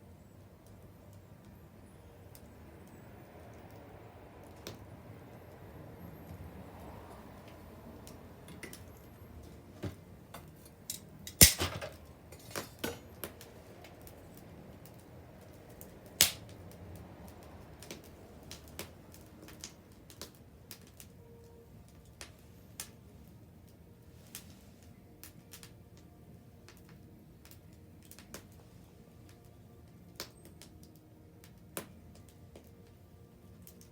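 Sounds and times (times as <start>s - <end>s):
bonfire crackling: 0.0s - 33.9s
sharp fire pops: 11.3s - 12.0s, 16.1s - 16.8s.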